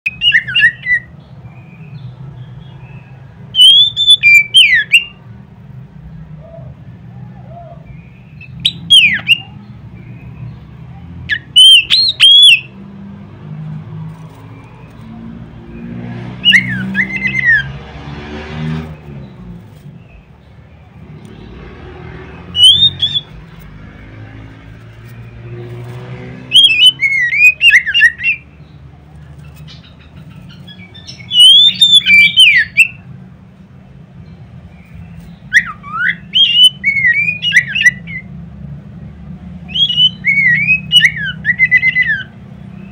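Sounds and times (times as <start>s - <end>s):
bird singing whistled phrases: 0.1s - 1.1s, 3.6s - 5.2s, 7.5s - 9.6s, 11.3s - 12.7s, 16.4s - 17.7s, 22.5s - 23.4s, 26.5s - 28.4s, 31.0s - 33.0s, 35.5s - 38.3s, 39.7s - 42.3s.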